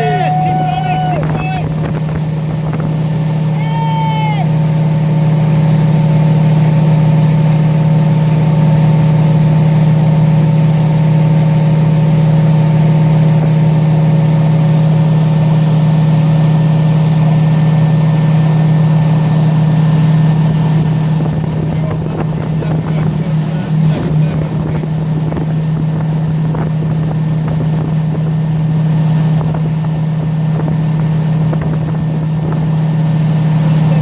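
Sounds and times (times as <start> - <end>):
motorboat engine drone: 0.0 - 34.0.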